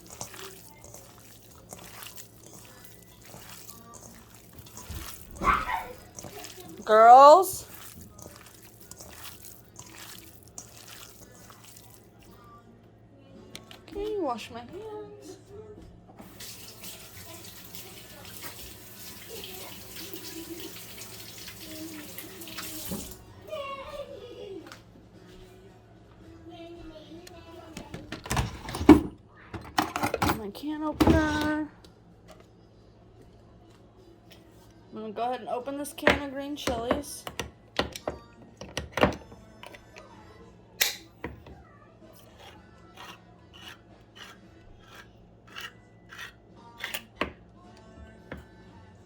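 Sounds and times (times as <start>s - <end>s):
faucet water splashing: 0.0s - 12.2s, 16.2s - 23.2s
hands washing under water: 0.0s - 12.2s
raw chicken squishing in a bowl: 0.0s - 12.5s.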